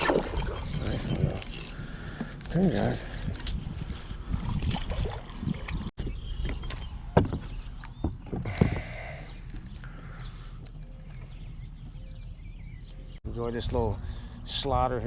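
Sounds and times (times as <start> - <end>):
knocks and clatter on a boat: 4.5 - 8.9.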